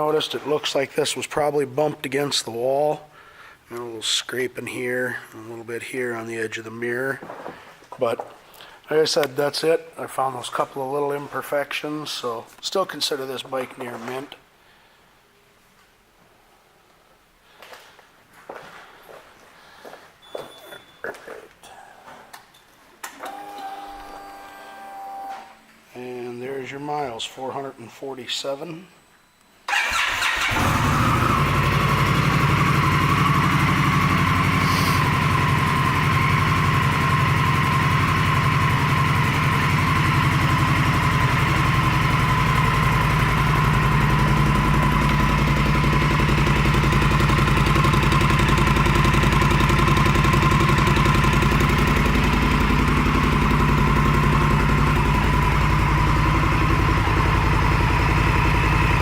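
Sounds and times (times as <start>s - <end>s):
motorcycle engine starting and idling: 29.7s - 59.0s.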